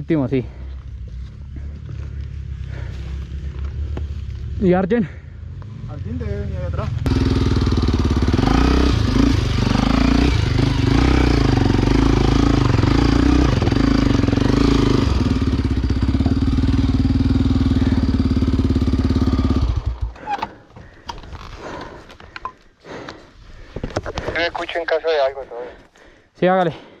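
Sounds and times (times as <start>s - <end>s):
motorcycle engine running: 0.4s - 22.0s.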